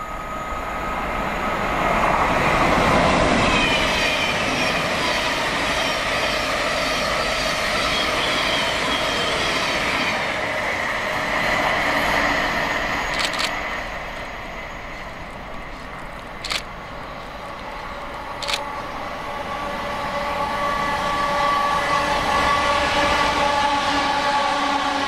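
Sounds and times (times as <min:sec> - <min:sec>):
electric train whine: 0:00.0 - 0:25.0
sharp clicks: 0:13.1 - 0:13.6, 0:16.4 - 0:16.7, 0:18.4 - 0:18.6.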